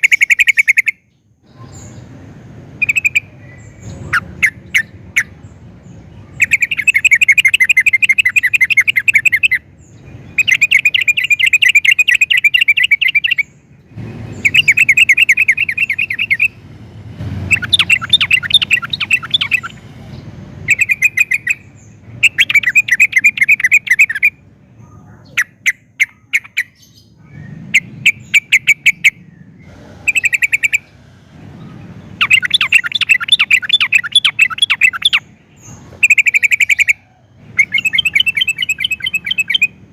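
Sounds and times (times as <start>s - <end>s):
bird singing chattering runs: 2.8s - 16.6s, 17.5s - 31.0s, 31.6s - 39.9s.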